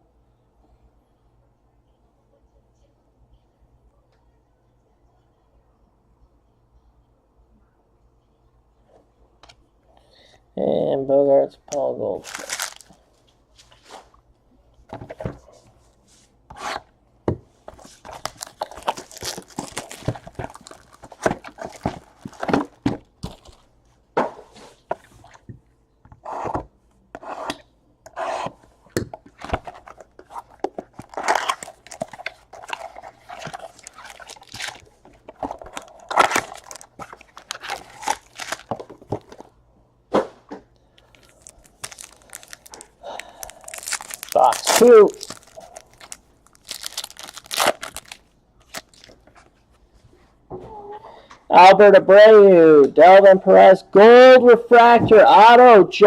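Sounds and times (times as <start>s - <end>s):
cards rustling and clicking: 11.7s - 13.0s, 17.7s - 23.6s, 28.2s - 39.5s, 41.0s - 49.6s
card packs being torn open: 12.2s - 12.9s, 17.8s - 23.6s, 29.3s - 39.5s, 41.0s - 49.2s.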